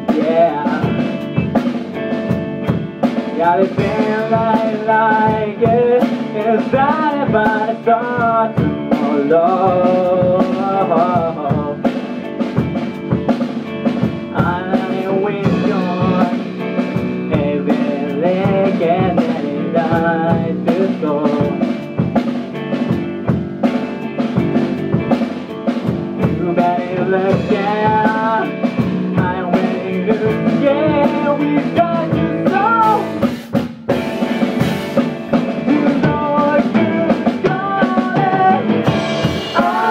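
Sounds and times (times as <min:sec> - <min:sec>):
person singing: 0:00.0 - 0:01.6, 0:03.1 - 0:12.4, 0:13.9 - 0:22.1, 0:26.1 - 0:33.3, 0:35.2 - 0:39.9
drum kit: 0:00.0 - 0:39.9
guitar: 0:00.0 - 0:39.9.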